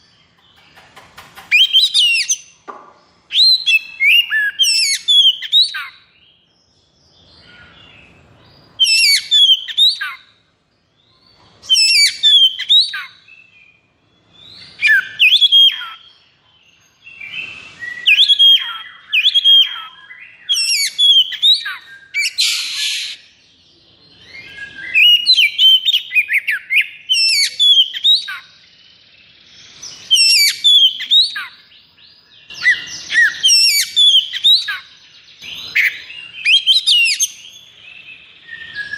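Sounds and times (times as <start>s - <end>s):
bird singing whistled notes: 1.5s - 38.9s
bird harsh rasp: 20.6s - 23.2s.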